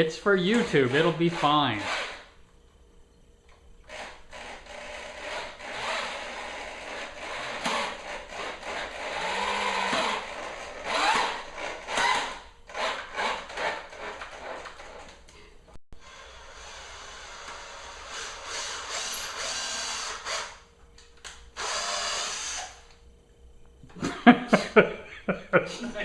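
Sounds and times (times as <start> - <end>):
power drill driving screws into wood: 1.8 - 2.3, 3.9 - 14.6, 16.0 - 20.6, 21.6 - 22.8.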